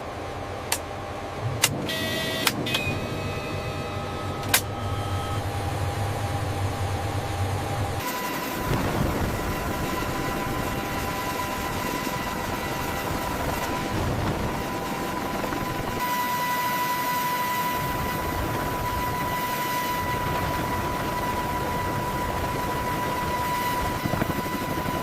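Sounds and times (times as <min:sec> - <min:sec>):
helicopter rotor and engine: 0:00.0 - 0:25.0
high turbine whine: 0:00.0 - 0:25.0.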